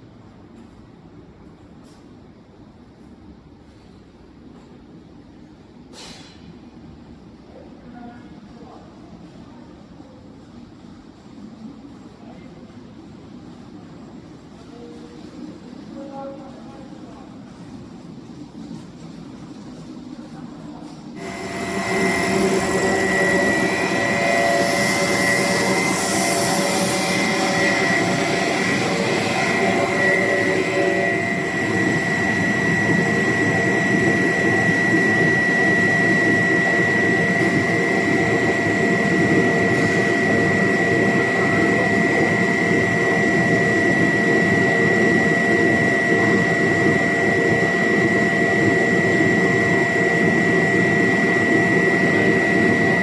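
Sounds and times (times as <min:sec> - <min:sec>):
low machine hums: 0:20.8 - 0:53.0
high-pitched machine whine: 0:21.2 - 0:53.0
machinery din: 0:21.2 - 0:53.0.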